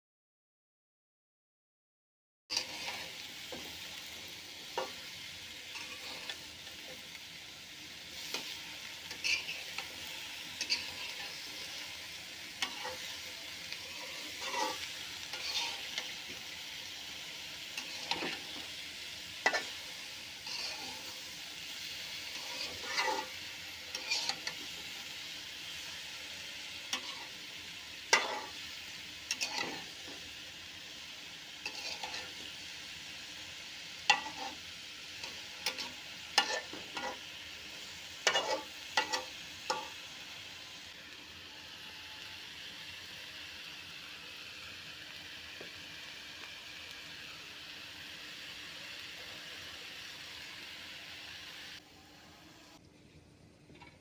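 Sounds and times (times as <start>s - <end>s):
spatula scraping pan: 2.5s - 4.0s, 4.6s - 7.0s, 8.1s - 25.2s, 26.8s - 30.2s, 31.6s - 32.5s, 34.0s - 37.3s, 38.2s - 40.0s
food sizzling in pan: 2.5s - 52.8s.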